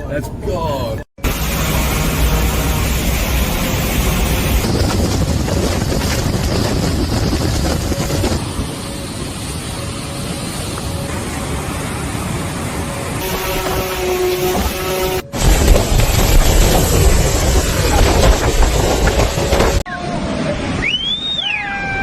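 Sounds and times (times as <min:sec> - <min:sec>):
rushing sea water: 0:01.2 - 0:21.8
strong wind buffeting microphone: 0:02.6 - 0:20.9.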